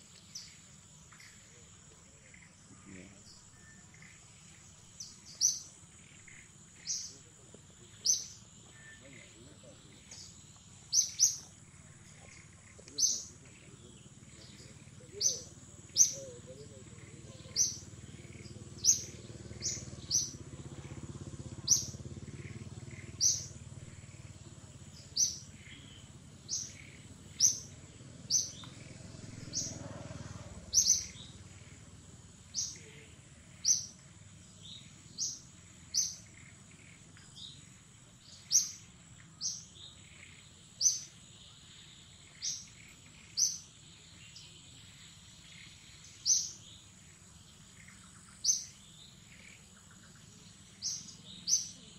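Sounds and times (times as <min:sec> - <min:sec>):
bird chirping: 0:00.0 - 0:51.9
faint high-pitched hum: 0:00.0 - 0:51.9.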